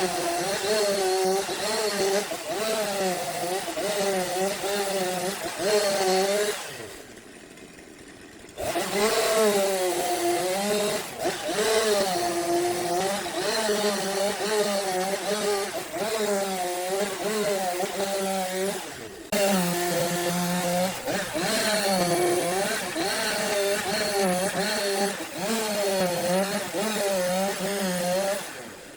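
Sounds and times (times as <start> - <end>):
wood lathe droning: 0.0 - 28.9.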